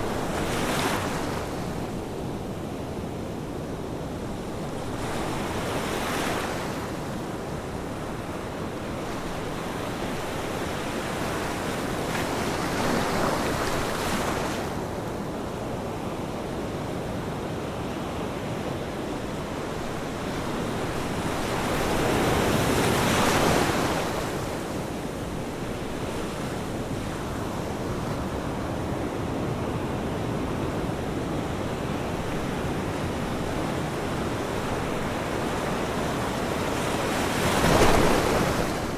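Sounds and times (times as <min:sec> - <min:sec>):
ocean waves breaking: 0:31.6 - 0:38.9.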